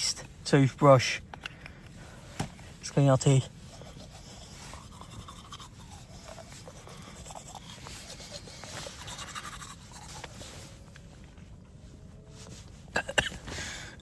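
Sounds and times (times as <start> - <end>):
toothbrush scrubbing teeth: 3.7 - 10.4.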